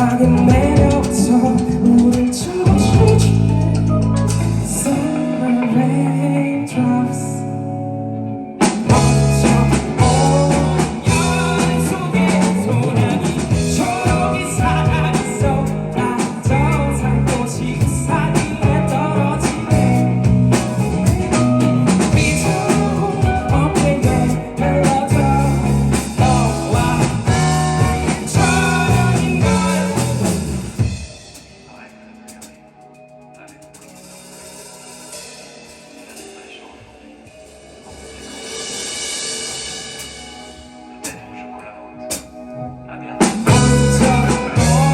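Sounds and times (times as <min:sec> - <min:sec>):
person singing: 0:00.0 - 0:08.0, 0:08.6 - 0:31.0, 0:43.0 - 0:44.9
live rock band playing: 0:00.0 - 0:44.9.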